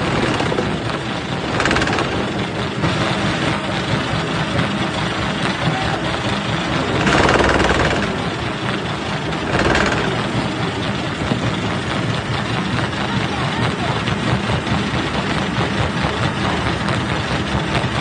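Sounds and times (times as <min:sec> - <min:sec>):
rock crusher grinding rattle: 0:00.0 - 0:05.6, 0:06.2 - 0:13.0.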